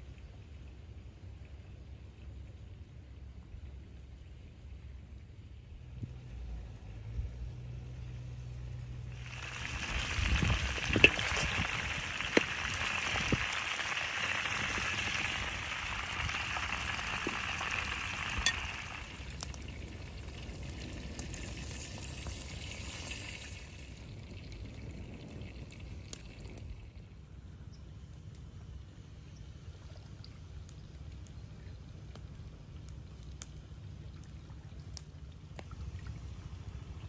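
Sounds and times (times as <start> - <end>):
chicken sizzling in hot oil: 7.4 - 26.7.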